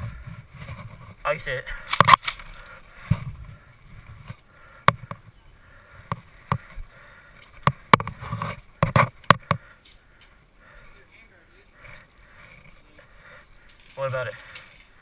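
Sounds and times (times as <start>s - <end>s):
sharp clicks and knocks: 7.4s - 10.3s.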